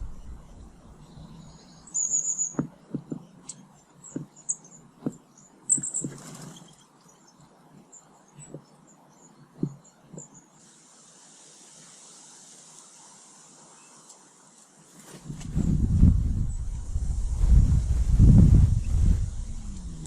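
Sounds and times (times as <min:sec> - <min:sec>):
small birds chirping: 0:00.0 - 0:15.1
soft taps and knocks: 0:02.6 - 0:04.4, 0:05.0 - 0:06.3, 0:09.5 - 0:10.4.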